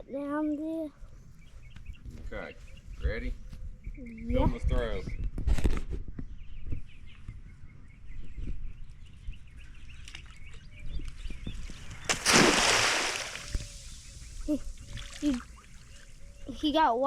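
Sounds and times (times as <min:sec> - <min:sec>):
birds chirping: 0:00.0 - 0:17.0
cast net splashing into water: 0:12.0 - 0:14.1.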